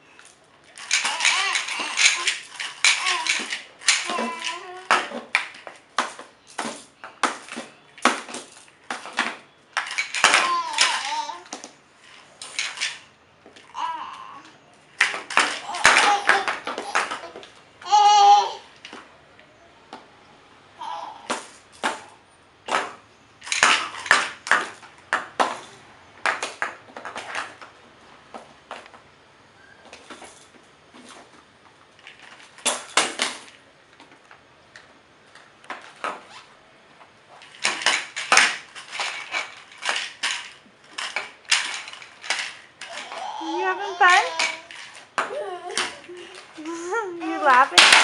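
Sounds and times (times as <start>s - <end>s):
toy banging on hard surface: 0.8s - 11.6s, 15.0s - 18.2s, 22.7s - 27.4s
baby banging hard toy: 0.9s - 5.4s, 9.9s - 11.6s, 15.0s - 18.6s, 23.5s - 24.6s, 42.3s - 45.9s.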